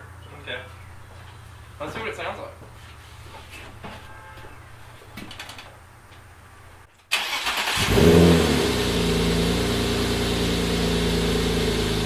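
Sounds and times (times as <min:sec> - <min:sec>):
car engine starting and idling: 0:07.1 - 0:12.0.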